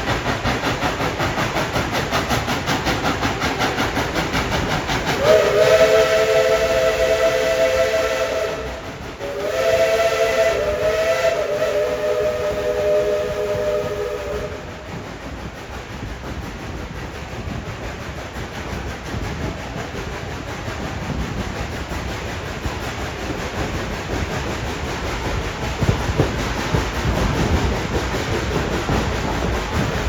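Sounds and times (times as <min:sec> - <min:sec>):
train running noise: 0:00.0 - 0:30.0
steam locomotive whistle: 0:05.1 - 0:15.1.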